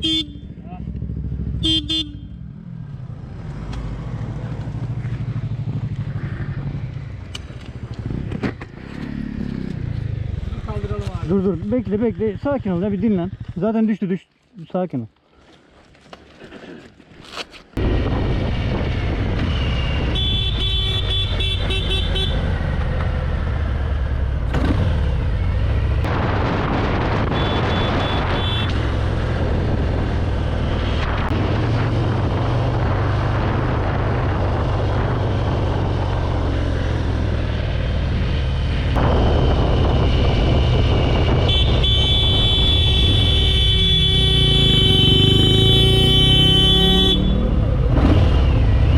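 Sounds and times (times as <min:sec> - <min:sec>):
car horn honking: 0:00.0 - 0:00.6, 0:01.6 - 0:02.4, 0:20.1 - 0:22.4, 0:27.3 - 0:28.8, 0:41.4 - 0:47.5
road traffic rumble: 0:00.0 - 0:14.3, 0:17.6 - 0:48.9.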